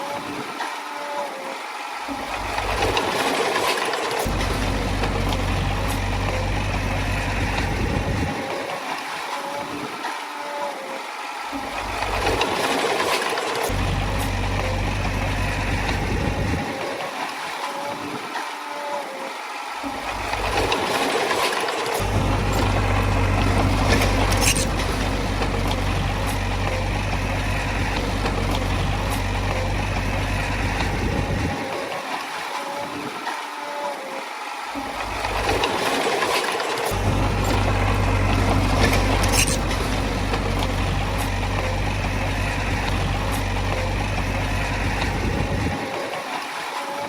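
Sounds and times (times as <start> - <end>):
heavy diesel machinery rumble: 2.2 - 3.2, 4.2 - 8.4, 11.6 - 12.7, 13.5 - 16.7, 19.9 - 31.7, 34.8 - 45.9.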